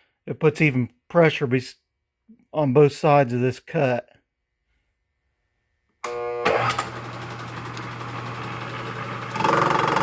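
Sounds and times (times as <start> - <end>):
milling machine spindle motor: 6.1 - 10.0.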